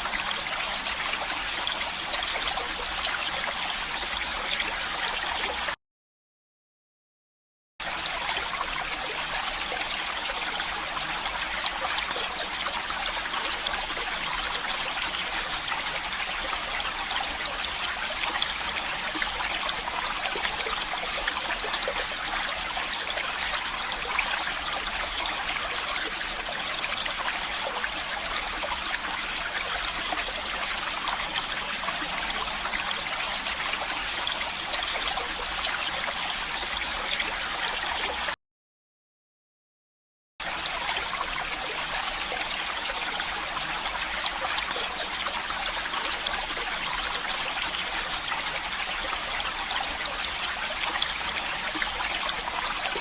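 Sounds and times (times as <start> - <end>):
stream water trickling: 0.0 - 5.8, 7.8 - 38.4, 40.4 - 53.0.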